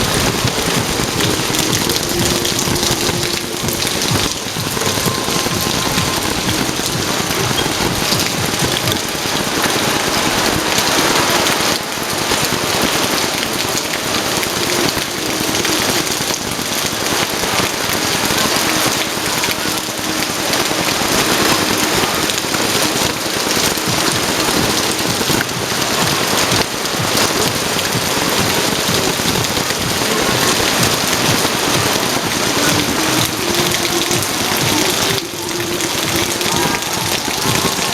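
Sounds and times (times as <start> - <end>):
heavy rain pouring: 0.0 - 37.9.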